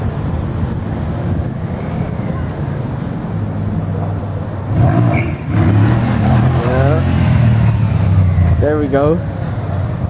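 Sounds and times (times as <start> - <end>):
wind noise on microphone: 0.0 - 10.0
motorcycle engine running: 4.4 - 10.0.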